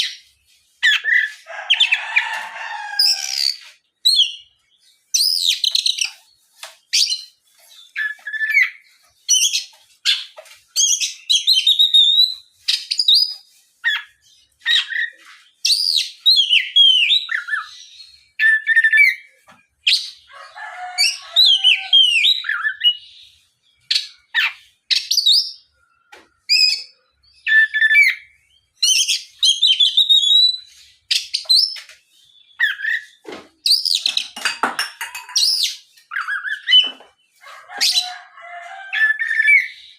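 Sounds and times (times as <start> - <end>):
lower harsher bird chatter: 0.0 - 39.9
songbird whistling and chattering: 5.1 - 6.2, 6.9 - 20.2, 26.5 - 34.4, 35.4 - 37.0.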